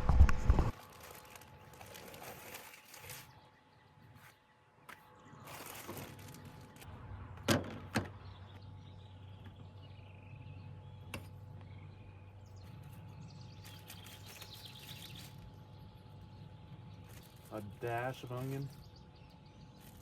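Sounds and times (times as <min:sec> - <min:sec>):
steady low hum: 0:00.0 - 0:20.0
faint bird chirps: 0:08.1 - 0:20.0.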